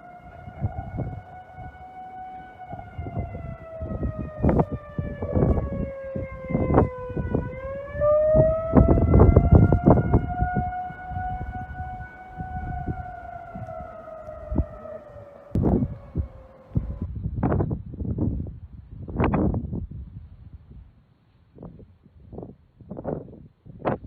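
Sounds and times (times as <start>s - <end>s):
tornado warning siren wailing: 0.0s - 17.2s
wind gusting on microphone: 0.0s - 24.0s.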